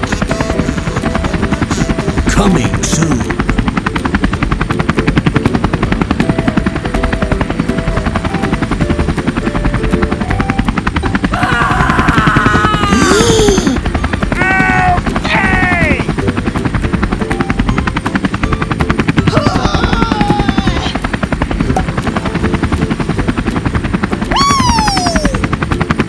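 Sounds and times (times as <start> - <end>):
cartoon squeaky calls: 0.0 - 2.4, 24.3 - 25.4
helicopter rotor chopping: 0.0 - 26.0.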